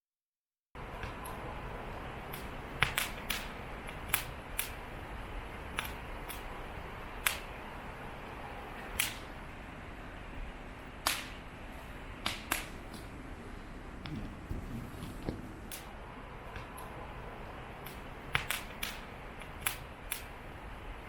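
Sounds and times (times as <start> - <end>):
low hiss of burning: 0.8 - 21.0
campfire crackling and popping: 2.2 - 5.0, 5.7 - 7.6, 8.9 - 9.4, 11.0 - 11.4, 12.2 - 13.2, 15.0 - 17.0, 17.7 - 20.4.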